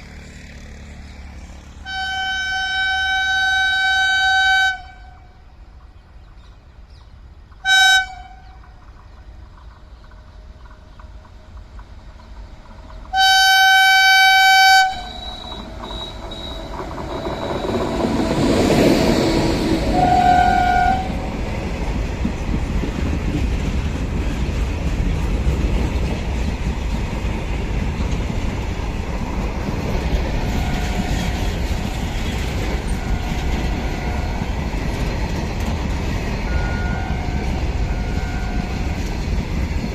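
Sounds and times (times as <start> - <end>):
train rumble: 0.0 - 39.9
train horn: 1.8 - 5.4, 7.6 - 8.6, 13.1 - 16.6, 18.8 - 21.3, 30.2 - 35.1, 36.5 - 39.1
wheel clatter: 15.0 - 19.0.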